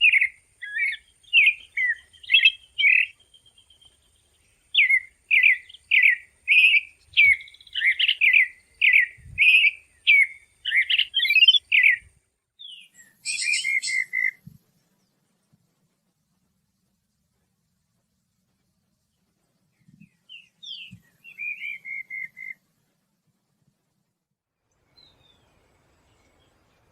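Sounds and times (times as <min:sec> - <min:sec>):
songbird singing: 0:00.0 - 0:17.5, 0:18.4 - 0:22.9, 0:24.6 - 0:26.9
harsh buzzy bird call: 0:12.7 - 0:14.4.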